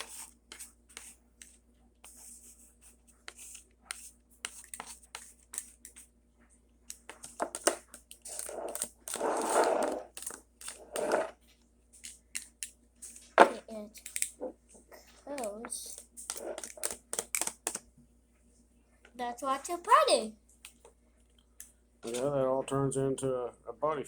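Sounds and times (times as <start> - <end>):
hands scraping plastic model: 7.1 - 11.4, 15.3 - 17.8.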